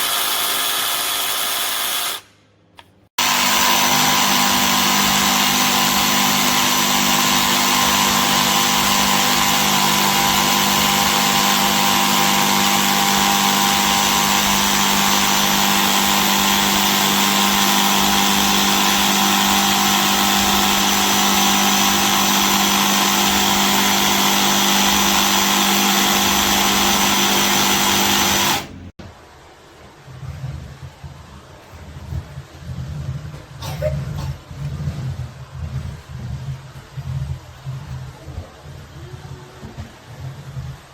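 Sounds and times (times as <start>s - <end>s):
jigsaw motor whine: 0.0s - 2.3s, 3.2s - 28.9s.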